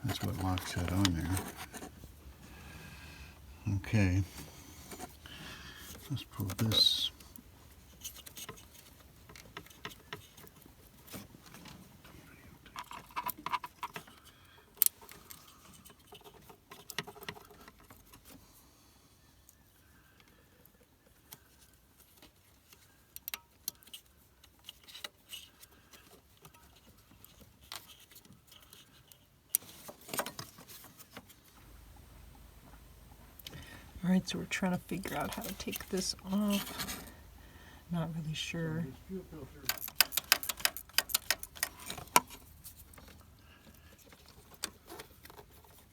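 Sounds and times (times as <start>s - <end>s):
tools clicking and rattling: 39.5s - 43.2s.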